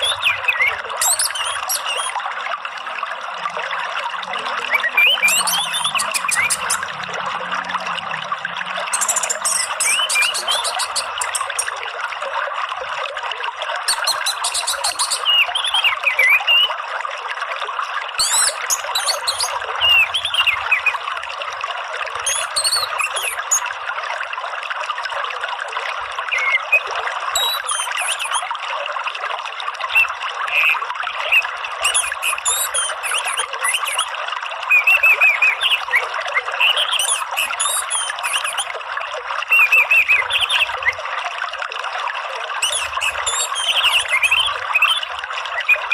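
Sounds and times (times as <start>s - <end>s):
birds chirping: 0.0s - 2.2s, 4.3s - 6.9s, 8.8s - 11.8s, 13.9s - 16.7s, 18.2s - 21.0s, 22.2s - 23.7s, 26.2s - 28.4s, 29.9s - 34.1s, 34.7s - 36.0s, 36.6s - 38.7s, 39.5s - 41.0s, 42.6s - 45.9s
trickling running water: 0.0s - 45.9s.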